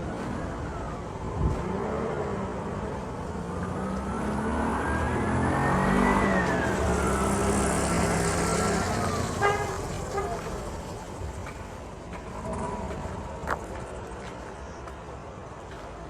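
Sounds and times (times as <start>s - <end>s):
vehicle engine passing by: 0.2s - 14.0s
brief horn toot: 7.1s - 10.9s.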